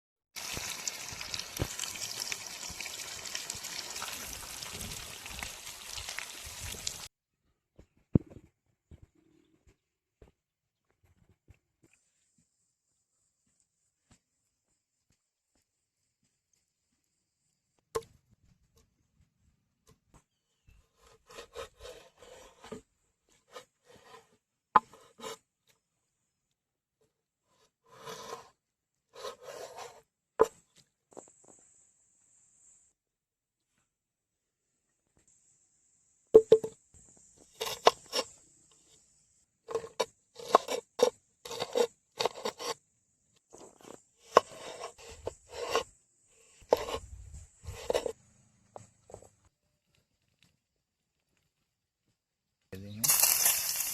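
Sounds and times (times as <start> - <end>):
knife scraping on wood: 20.8 - 25.5, 27.5 - 30.5, 37.4 - 38.4, 39.7 - 42.8, 43.5 - 48.2
faint high hiss: 52.9 - 53.9.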